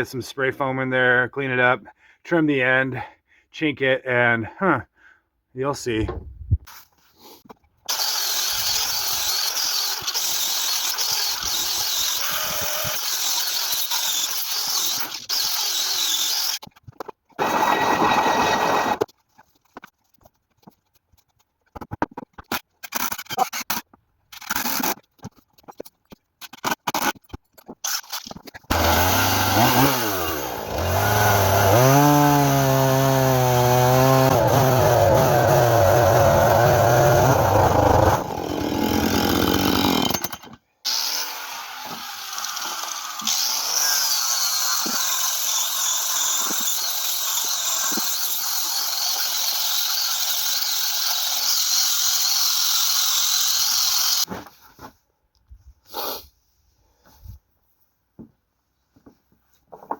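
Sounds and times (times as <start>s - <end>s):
chainsaw revving and running: 28.7s - 44.4s.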